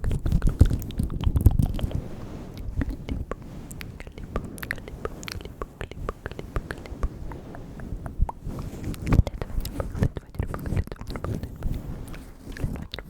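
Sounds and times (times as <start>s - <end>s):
wet tongue and lip clicks: 0.0s - 2.0s, 9.1s - 11.6s.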